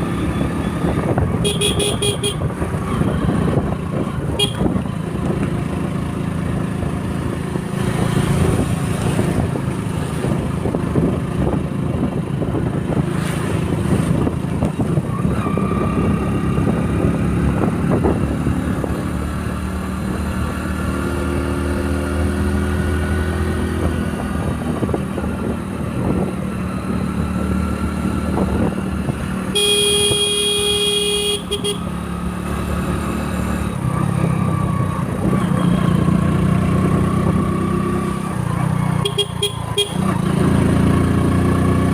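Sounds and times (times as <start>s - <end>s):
motorcycle engine running: 0.0s - 15.0s, 23.8s - 41.9s
road and traffic noise: 0.0s - 41.9s
vehicle horn: 1.4s - 2.5s, 4.4s - 4.8s, 29.5s - 31.9s, 39.0s - 40.1s.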